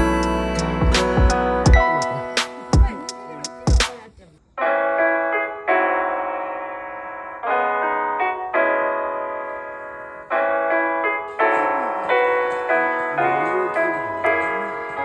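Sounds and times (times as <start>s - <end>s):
wavering low melody: 0.0s - 3.8s
piano chords: 0.0s - 3.9s, 4.6s - 15.0s.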